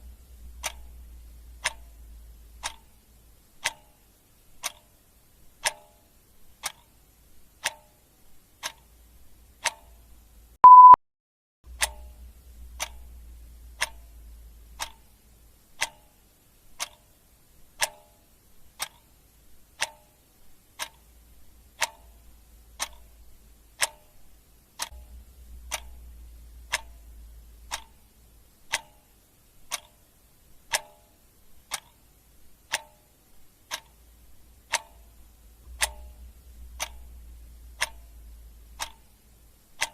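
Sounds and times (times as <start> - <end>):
clock ticking: 0.0 - 11.0, 11.7 - 39.9
short electronic beep: 10.6 - 11.0.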